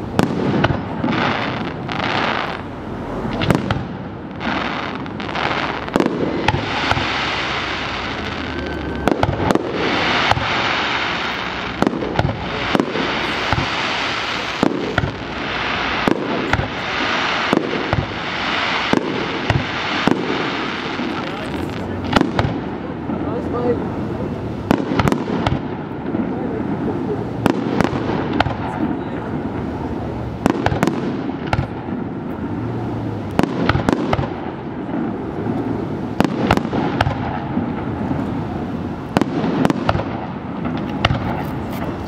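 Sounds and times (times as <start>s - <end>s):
continuous hiss: 0.0s - 42.0s
firework shells bursting: 3.3s - 22.7s.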